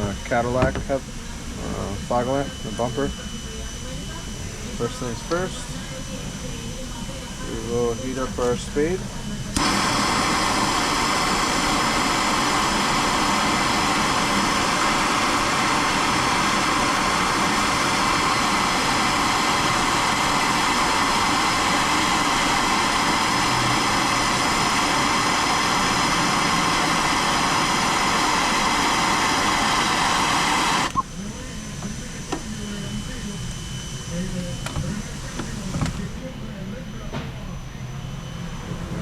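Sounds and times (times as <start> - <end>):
faint whine of heating tool: 0.0 - 39.0
heating tool rushing hiss: 7.5 - 36.2.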